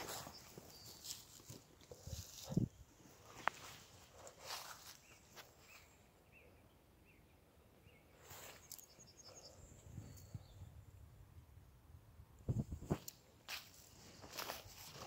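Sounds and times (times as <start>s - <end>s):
faint bird chirps: 0.0s - 1.5s, 4.5s - 10.9s
rustle: 0.0s - 5.9s, 8.2s - 9.3s, 12.6s - 15.0s.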